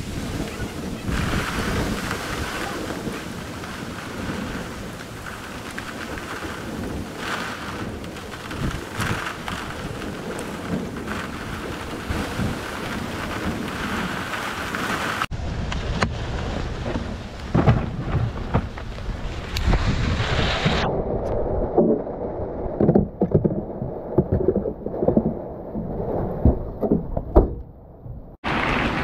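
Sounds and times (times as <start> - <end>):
steady rain falling: 0.0 - 20.7, 28.4 - 29.0
distant thunder: 0.0 - 29.0.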